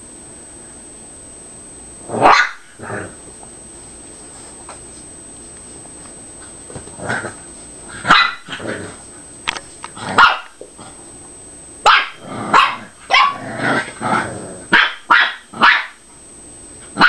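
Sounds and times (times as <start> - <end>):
dogs growling: 2.1 - 3.2, 6.9 - 9.1, 12.2 - 12.6, 13.4 - 14.7
dogs barking: 2.2 - 2.8, 8.0 - 8.7, 10.1 - 10.6, 11.8 - 13.5, 14.7 - 16.0.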